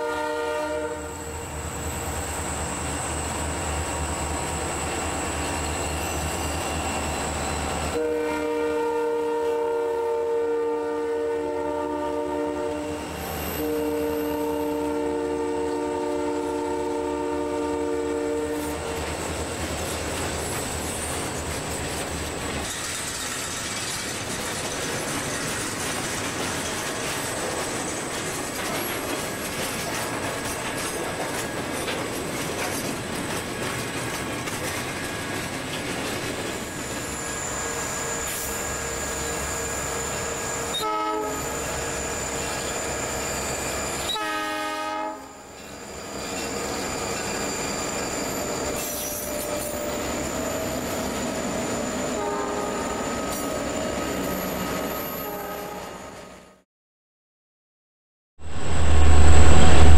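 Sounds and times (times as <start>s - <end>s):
locomotive horn blasts: 0.0s - 1.2s, 7.9s - 13.0s, 13.6s - 18.9s, 40.7s - 41.6s, 44.1s - 45.5s, 52.1s - 53.0s, 55.2s - 56.0s
freight train rolling past: 0.0s - 56.6s, 58.4s - 59.9s.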